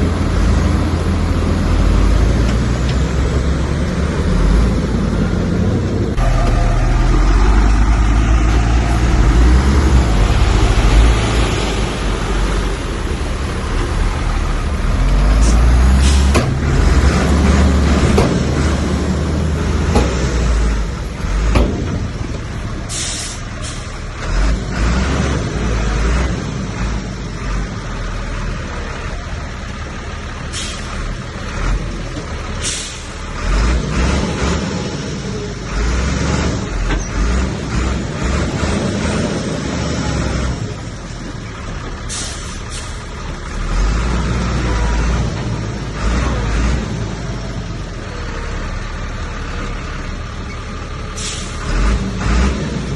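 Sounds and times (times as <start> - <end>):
heavy diesel machinery working: 0.0 - 52.9
short hisses: 22.9 - 23.9, 51.2 - 51.6.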